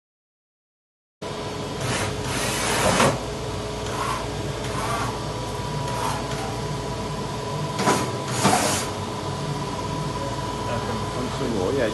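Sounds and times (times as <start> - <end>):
machinery humming: 1.2 - 11.9.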